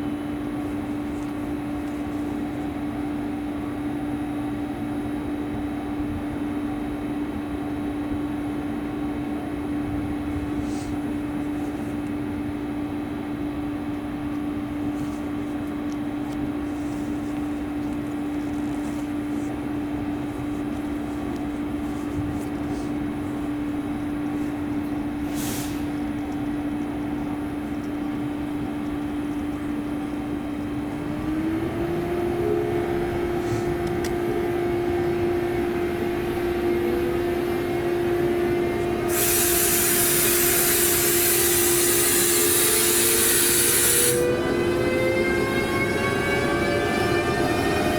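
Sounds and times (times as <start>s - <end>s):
locomotive humming: 19.1s - 47.9s.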